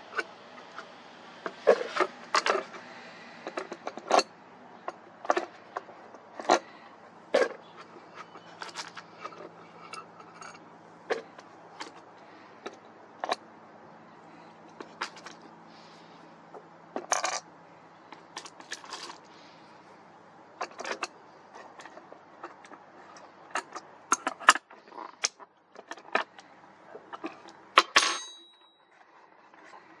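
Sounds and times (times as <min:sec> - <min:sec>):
clicks of small hard objects: 0:18.1 - 0:19.6.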